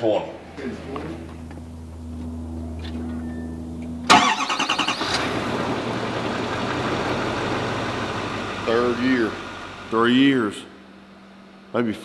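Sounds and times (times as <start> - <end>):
low hum: 0.0 - 12.0
car engine cranking and starting: 0.4 - 10.1.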